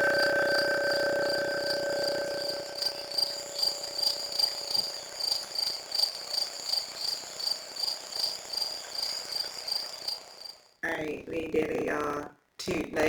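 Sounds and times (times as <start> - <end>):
low held tone: 0.0 - 5.5
insect chirping: 0.0 - 10.8.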